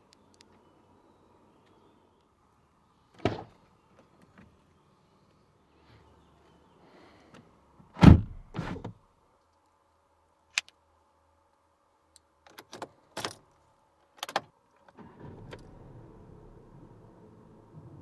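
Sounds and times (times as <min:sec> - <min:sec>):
car door shutting: 0:08.0 - 0:09.0.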